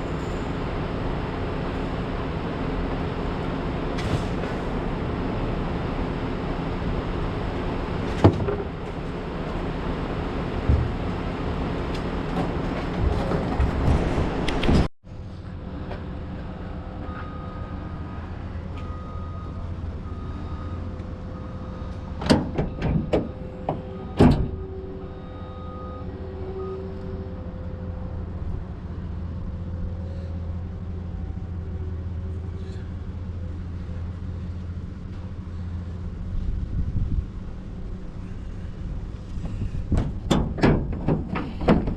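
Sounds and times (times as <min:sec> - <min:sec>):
truck engine running: 0:00.0 - 0:41.9
sharp knocks and rattles: 0:39.4 - 0:41.9.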